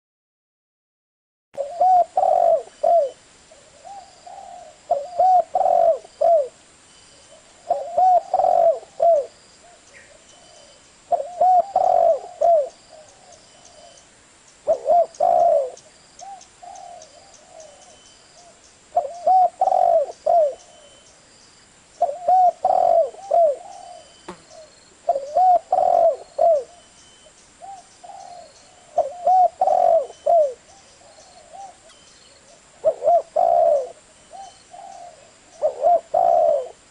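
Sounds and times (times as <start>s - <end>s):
dove cooing: 1.6s - 6.6s, 7.3s - 14.0s, 14.6s - 21.0s, 22.0s - 26.9s, 27.6s - 36.9s.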